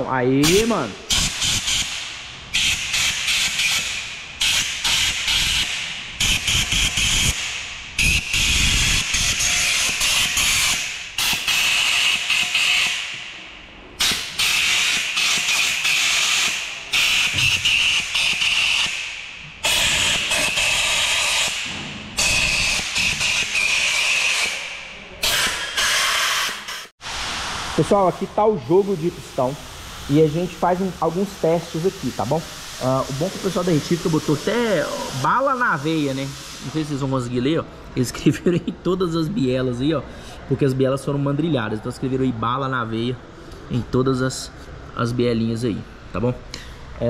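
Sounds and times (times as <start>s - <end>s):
compressed-air blow gun hissing: 26.1s - 36.9s.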